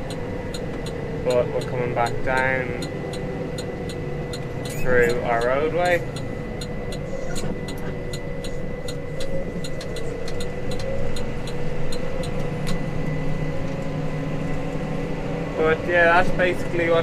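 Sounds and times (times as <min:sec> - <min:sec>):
irregular rattling ticks: 0:00.0 - 0:12.9
tractor diesel engine under load: 0:00.0 - 0:17.0.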